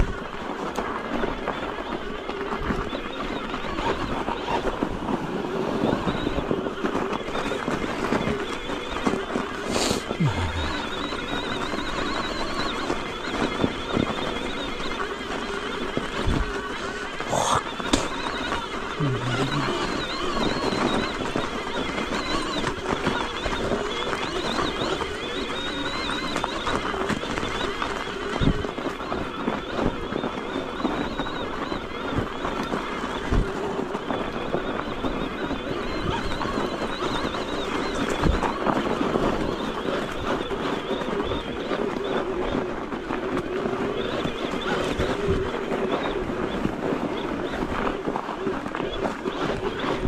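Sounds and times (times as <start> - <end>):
bike tyre rushing over snow: 0.0 - 35.4, 36.0 - 50.0
thin high motor whine: 7.3 - 28.4.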